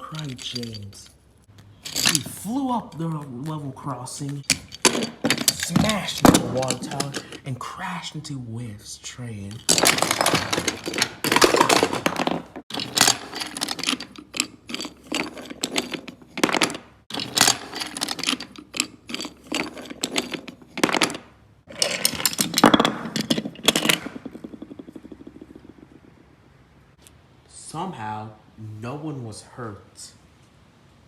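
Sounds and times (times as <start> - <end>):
toy trains clattering: 0.0 - 7.6, 9.4 - 25.9.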